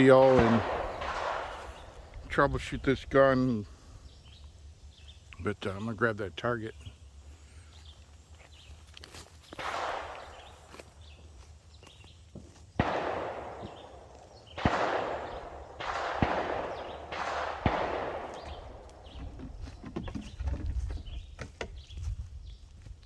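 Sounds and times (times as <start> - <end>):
gunshots with echo: 0.0 - 3.4, 9.6 - 10.8, 12.8 - 19.2.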